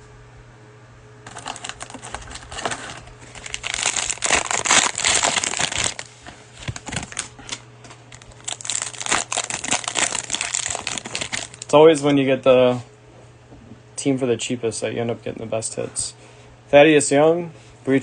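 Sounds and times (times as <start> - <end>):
cellophane wrapper crinkling: 1.2 - 11.8.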